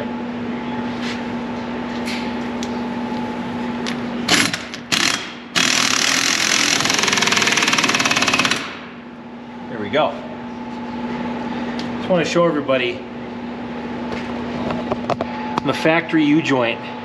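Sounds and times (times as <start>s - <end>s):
steady hum: 0.0s - 17.0s
impact wrench hammering: 4.3s - 9.0s.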